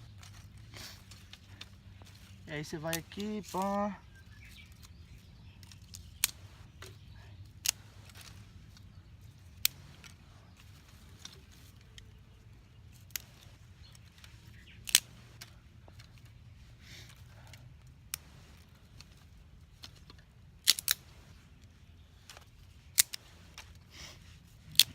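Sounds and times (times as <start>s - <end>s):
twigs snapping: 0.0s - 23.8s, 24.5s - 24.9s
twigs crackling when handled: 0.0s - 24.9s.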